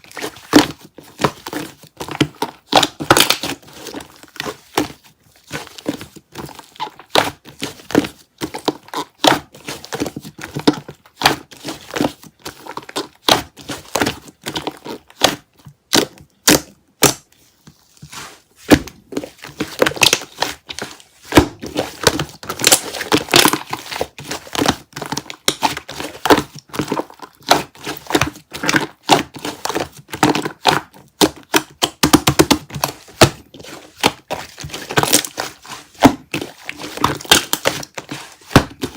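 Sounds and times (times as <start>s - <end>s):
slime crackling and popping: 1.5s - 3.7s, 19.8s - 38.9s.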